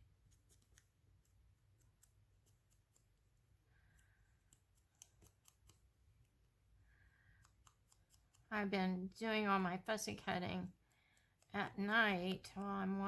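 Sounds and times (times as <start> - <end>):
scissors cutting paper: 0.3 - 3.2, 4.4 - 5.9, 7.4 - 8.5, 10.4 - 13.0.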